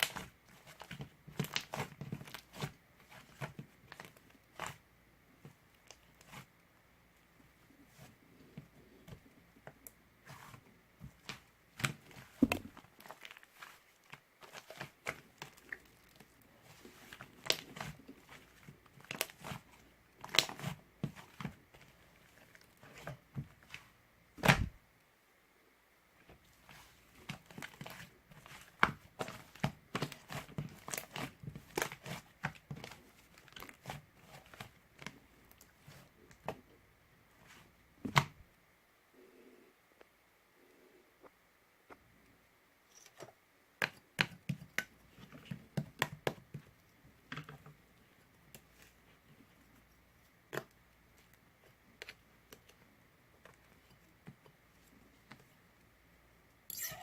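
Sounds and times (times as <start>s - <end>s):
clicks taps and crinkles of handling: 0.0s - 6.5s, 8.0s - 24.6s, 26.2s - 36.8s, 41.2s - 55.7s.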